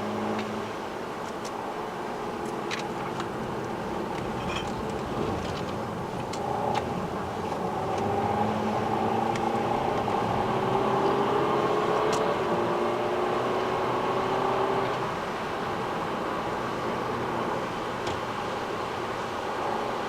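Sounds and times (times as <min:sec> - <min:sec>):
car engine accelerating: 0:06.4 - 0:20.0.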